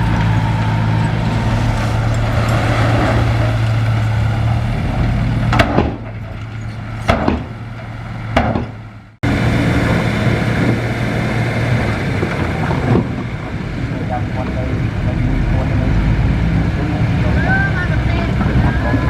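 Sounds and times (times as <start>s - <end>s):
heavy diesel machinery running: 0.0s - 19.0s
sharp knocks: 5.5s - 6.3s, 7.0s - 7.6s, 8.3s - 8.8s.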